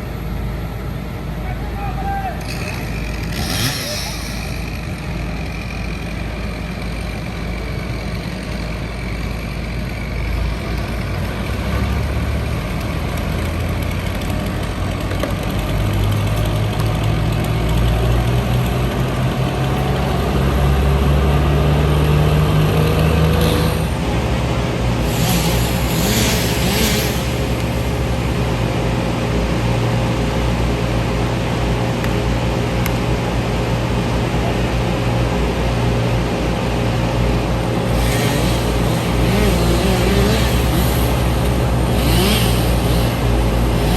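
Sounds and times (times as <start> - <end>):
heavy diesel engine revving: 2.4 - 9.2, 11.0 - 29.0, 37.7 - 43.9
hissing: 2.6 - 4.8.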